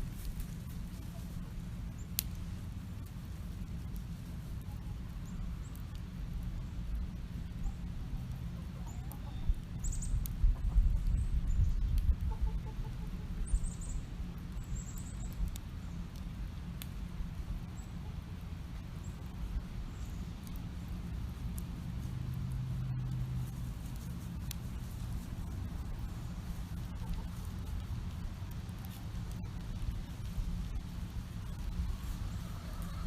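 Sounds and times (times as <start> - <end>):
campfire rumble and crackles: 0.0 - 33.0
chickens clucking: 26.8 - 27.5, 31.9 - 33.0.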